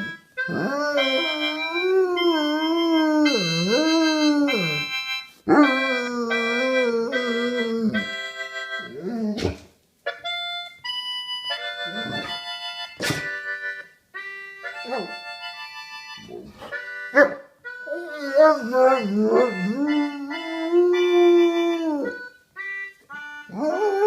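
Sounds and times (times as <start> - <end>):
harmonica playing: 0.0 - 9.4, 10.1 - 24.0
dog howling: 0.5 - 4.8.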